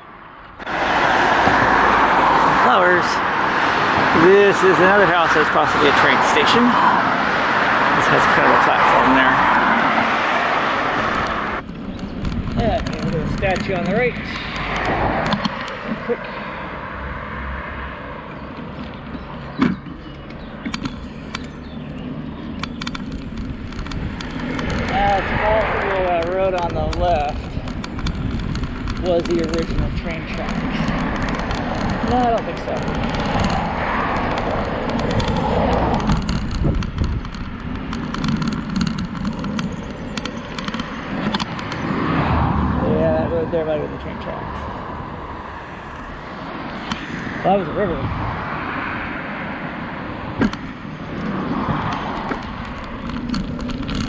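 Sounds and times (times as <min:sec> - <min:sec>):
wind on microphone: 0:00.0 - 0:16.1, 0:21.6 - 0:54.0
bicycle tyre rumble: 0:00.5 - 0:54.0
bicycle rattling clicks: 0:22.4 - 0:25.0, 0:26.2 - 0:42.2, 0:50.4 - 0:54.0.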